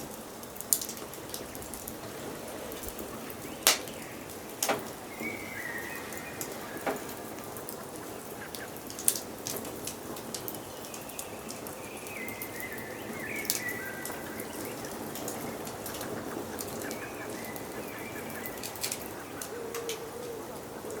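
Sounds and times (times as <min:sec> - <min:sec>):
wood fire crackling and popping: 0:00.0 - 0:07.8, 0:08.5 - 0:21.0
bird singing: 0:03.1 - 0:08.8, 0:10.5 - 0:21.0.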